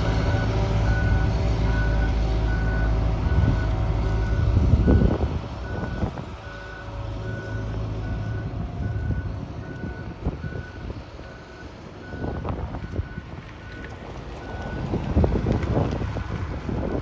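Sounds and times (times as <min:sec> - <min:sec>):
wind buffeting microphone: 0:00.0 - 0:17.0
reversing alarm beeping: 0:00.2 - 0:13.8.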